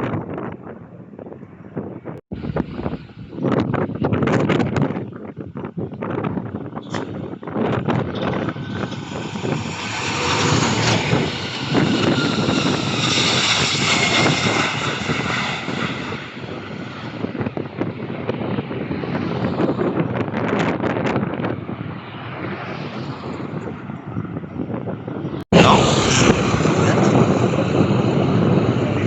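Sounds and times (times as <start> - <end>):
wind rumble on microphone: 0.0 - 29.0
airliner engines passing: 6.3 - 29.0.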